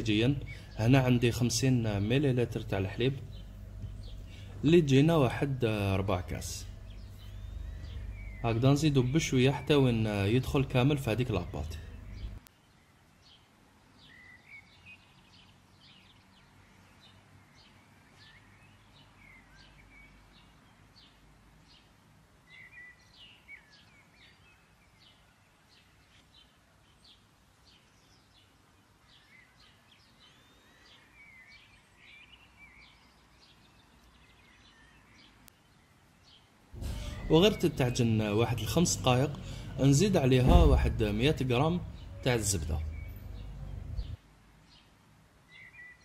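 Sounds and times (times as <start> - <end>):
low steady hum: 0.0 - 12.5, 36.8 - 44.2
faint birdsong: 0.0 - 46.0.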